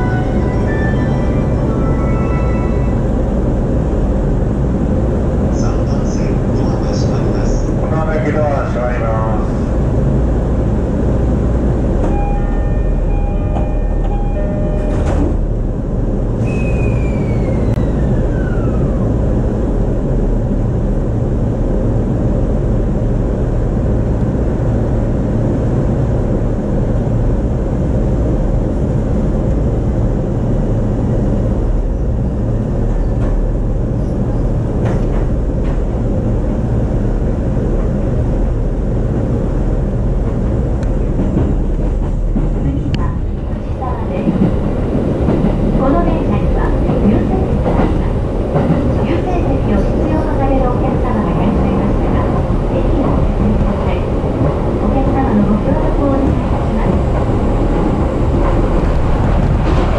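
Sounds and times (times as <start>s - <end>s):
train wheels rumbling: 0.0s - 59.9s
brief steady tones: 12.1s - 15.3s.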